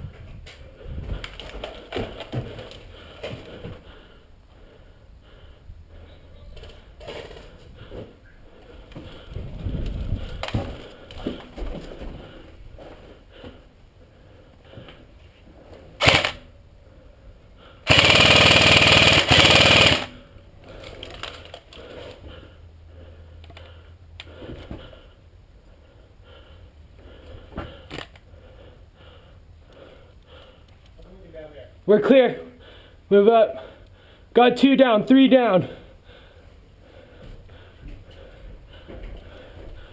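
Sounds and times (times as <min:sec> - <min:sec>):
footsteps: 0:06.6 - 0:13.7, 0:37.1 - 0:39.9
airsoft rifle firing full auto: 0:16.0 - 0:16.5, 0:17.9 - 0:20.2.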